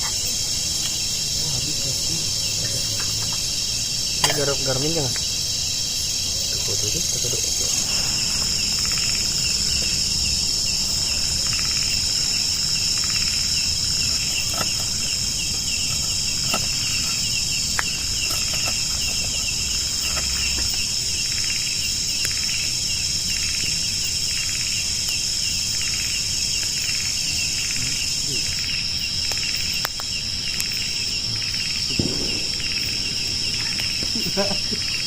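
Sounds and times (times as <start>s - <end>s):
fast pulsing insect trill: 0.0s - 35.0s
high shrill insect drone: 0.0s - 35.0s.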